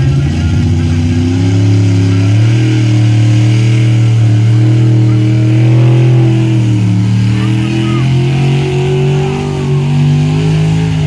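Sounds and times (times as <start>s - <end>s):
truck engine at high revs: 0.0s - 11.0s.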